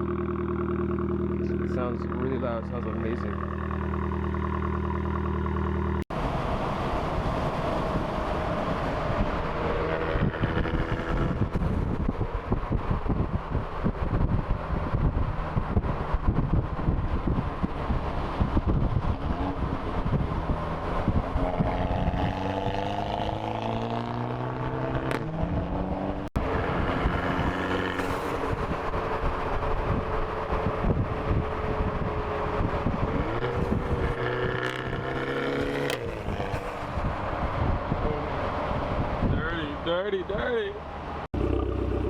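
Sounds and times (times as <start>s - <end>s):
car engine revving: 0.0s - 13.9s, 14.6s - 39.2s, 41.2s - 42.0s
wind on microphone: 6.9s - 39.6s.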